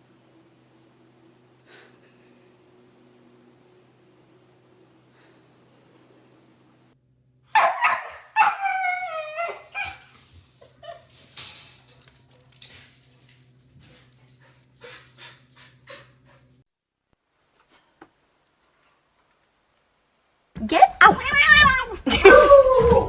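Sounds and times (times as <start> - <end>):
dog yelping and whining: 7.6 - 12.0, 12.6 - 16.6, 20.9 - 23.0.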